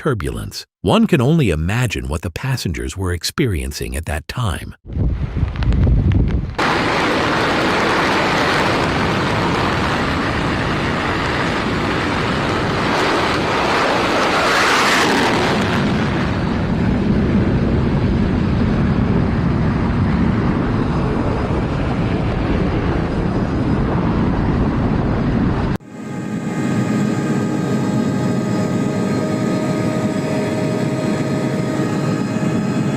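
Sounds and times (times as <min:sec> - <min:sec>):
wind buffeting microphone: 0:04.8 - 0:13.8
jet engines rumbling: 0:06.5 - 0:32.9.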